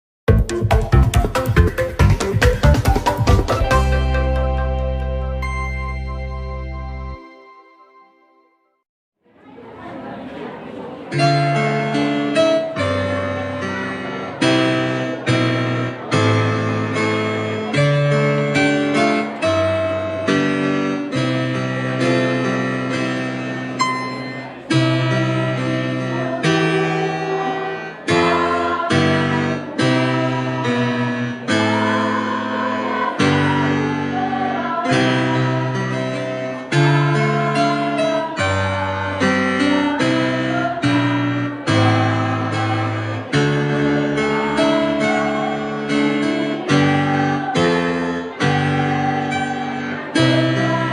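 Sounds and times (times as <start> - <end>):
strummed guitar chords: 0.3 - 6.6.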